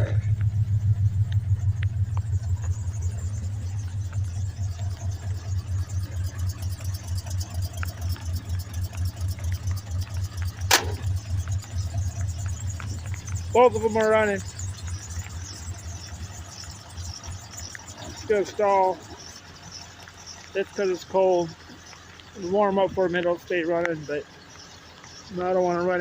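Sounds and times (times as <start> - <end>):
car engine idling: 0.0 - 26.0
sharp click: 10.7 - 11.1.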